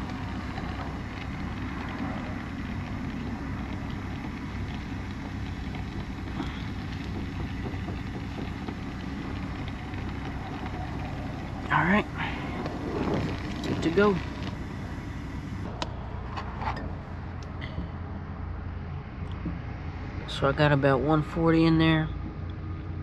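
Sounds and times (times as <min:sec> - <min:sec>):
torch flame rushing: 0:00.0 - 0:15.7.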